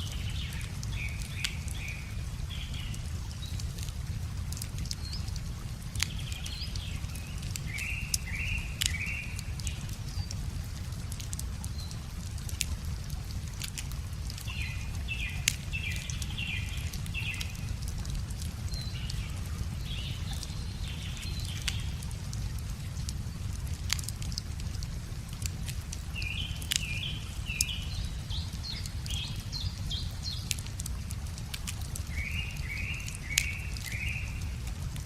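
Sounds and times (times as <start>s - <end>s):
songbird singing: 0.0s - 3.8s, 6.0s - 10.5s, 14.5s - 22.1s, 26.1s - 30.7s, 32.0s - 34.6s
campfire wood crackling: 0.0s - 35.0s.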